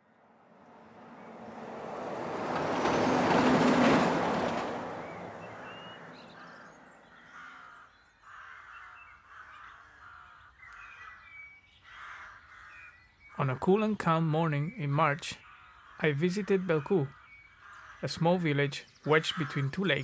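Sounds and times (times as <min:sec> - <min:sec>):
car passing: 0:00.0 - 0:07.8
rooks cawing: 0:02.4 - 0:13.6, 0:14.8 - 0:20.0.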